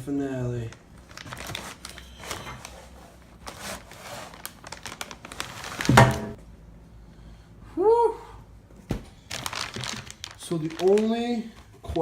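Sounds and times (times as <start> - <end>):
packing material crinkling and tearing: 0.6 - 6.4, 9.2 - 11.6.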